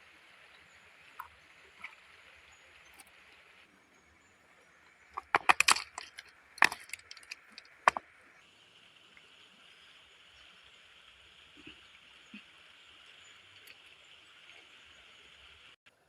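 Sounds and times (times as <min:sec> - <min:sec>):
sharp cracks and knocks: 0:05.2 - 0:08.0
faint steady hiss: 0:06.3 - 0:16.0.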